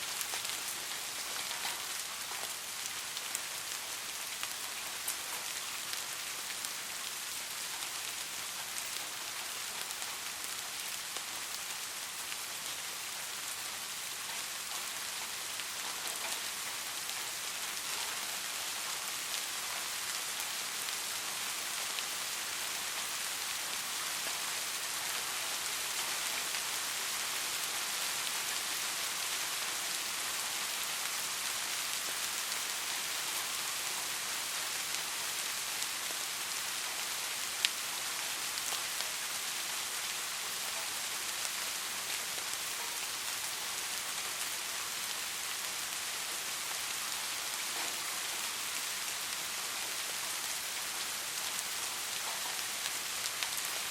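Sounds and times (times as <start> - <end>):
soft rain hissing: 0.0 - 53.9.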